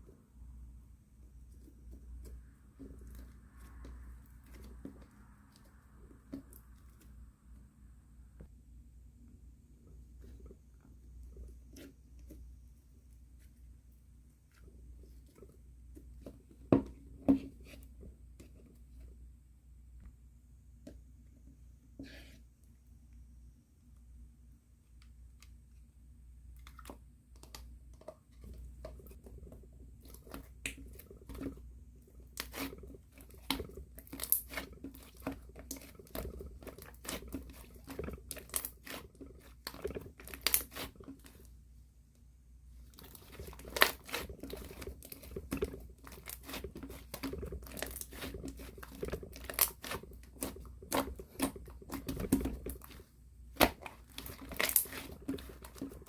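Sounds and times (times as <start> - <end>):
hands squishing slime: 28.3 - 41.5, 42.8 - 56.0.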